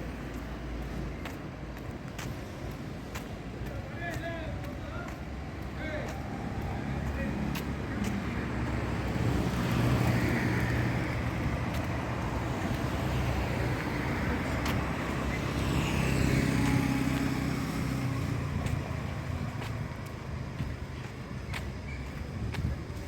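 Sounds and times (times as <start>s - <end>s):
busy road traffic: 0.0s - 23.0s
heavy vehicle passing: 5.9s - 21.4s.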